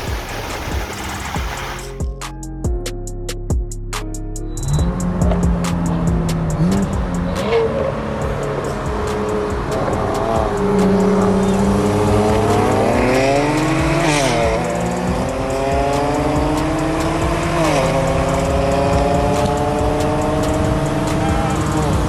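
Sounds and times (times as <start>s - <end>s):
car engine at full throttle: 4.6s - 22.0s.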